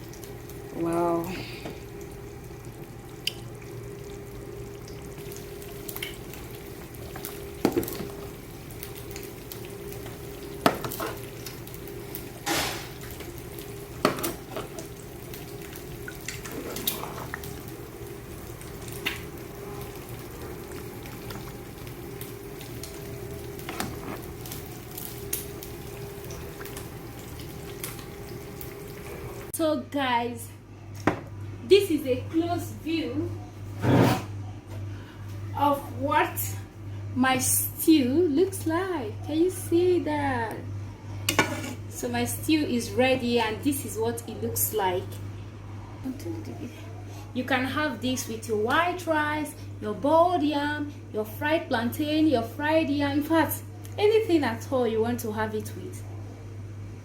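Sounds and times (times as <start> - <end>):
stew sizzling and bubbling: 0.0 - 29.6, 36.9 - 49.8.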